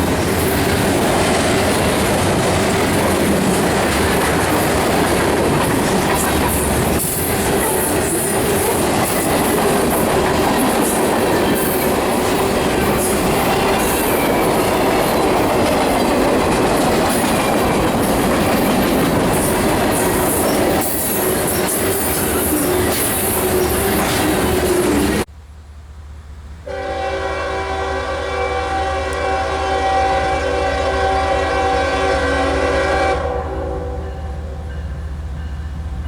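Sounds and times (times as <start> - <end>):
freight train wheels clattering: 0.0 - 25.3
locomotive air horn: 26.6 - 34.6.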